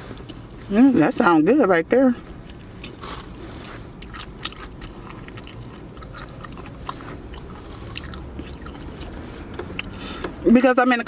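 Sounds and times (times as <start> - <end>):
low hum inside a car: 0.0 - 11.0
chewing and biting food: 2.2 - 10.2.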